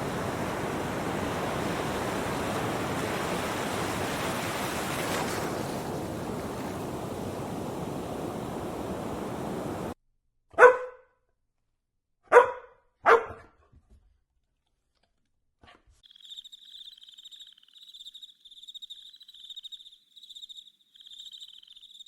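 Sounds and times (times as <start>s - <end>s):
steady rushing noise: 0.0s - 4.9s
dog barking: 10.5s - 11.1s, 12.3s - 13.6s.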